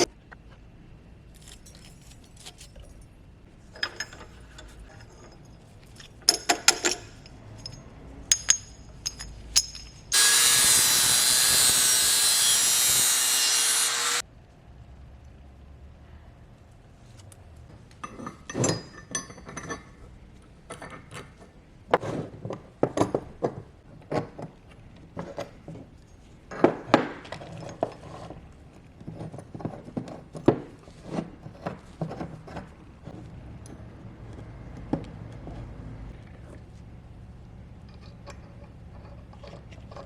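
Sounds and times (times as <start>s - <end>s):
metal tools clinking on workbench: 1.4s - 3.1s, 3.7s - 10.7s, 18.0s - 20.1s.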